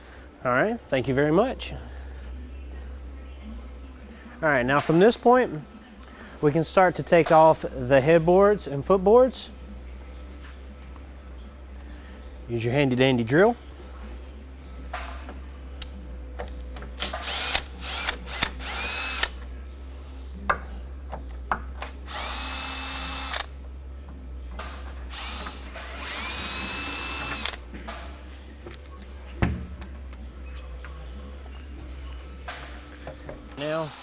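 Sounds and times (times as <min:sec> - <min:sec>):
power drill motor whine: 0:17.0 - 0:19.4, 0:21.8 - 0:23.5, 0:25.1 - 0:27.6, 0:33.6 - 0:34.0.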